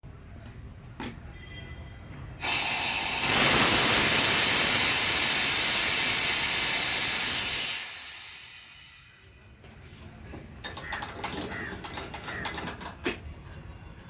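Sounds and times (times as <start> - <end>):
pressurized air hissing: 2.4 - 9.4.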